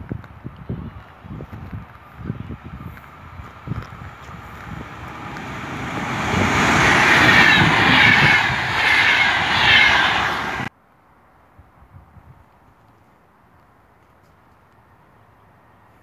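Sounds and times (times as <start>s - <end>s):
train passing by: 1.0s - 10.7s.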